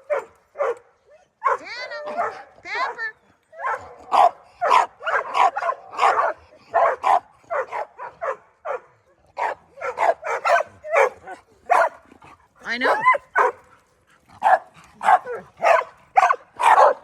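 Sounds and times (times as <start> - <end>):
dogs barking sharply: 0.0 - 3.0, 3.6 - 12.1, 12.7 - 13.7, 14.3 - 17.0.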